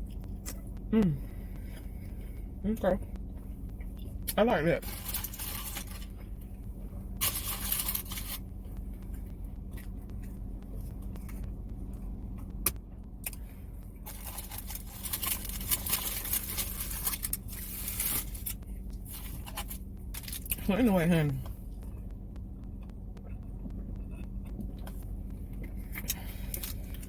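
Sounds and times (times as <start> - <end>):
crackly chewing: 0.0 - 20.7, 21.3 - 27.0
steady low hum: 0.0 - 27.0
wrapper rustling: 14.1 - 19.6.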